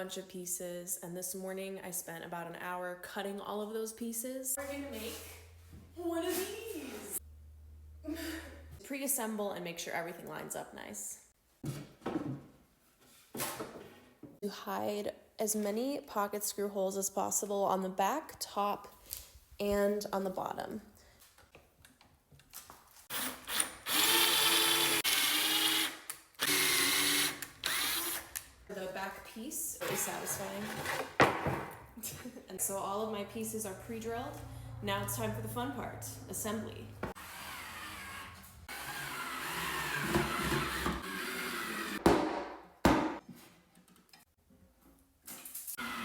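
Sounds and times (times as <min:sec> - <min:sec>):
power drill boring into wood: 0:23.1 - 0:28.4, 0:37.2 - 0:42.0, 0:45.8 - 0:46.0.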